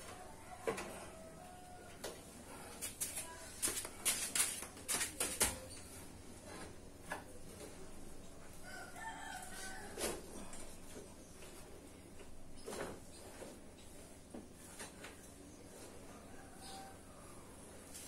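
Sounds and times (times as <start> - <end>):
rooster crowing: 0.3 - 2.1, 8.6 - 10.5, 16.1 - 17.5.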